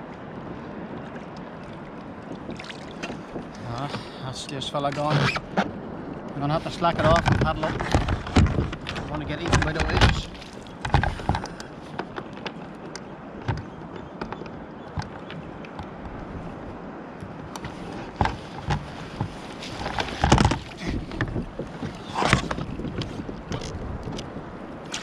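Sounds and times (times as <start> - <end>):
paddle splashes: 0.0 - 25.0
water slapping a hull: 0.0 - 25.0
waves washing: 0.0 - 25.0.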